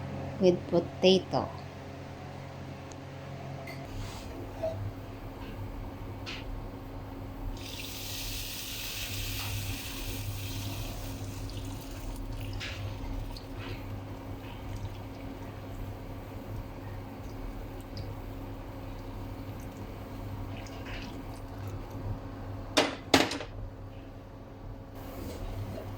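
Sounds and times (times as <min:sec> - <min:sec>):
low steady hum: 0:00.0 - 0:07.9, 0:10.0 - 0:25.9
water running from tap: 0:07.5 - 0:18.2.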